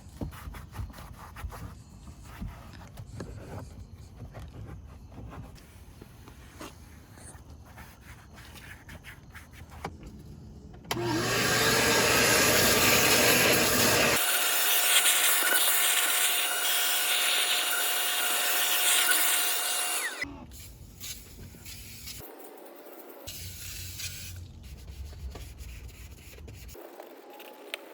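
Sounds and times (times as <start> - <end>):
electric motor whining: 10.9 - 20.2.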